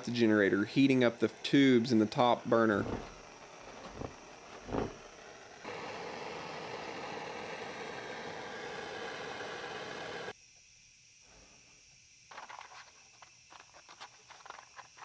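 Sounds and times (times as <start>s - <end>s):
hiss of a flame: 0.0s - 10.3s.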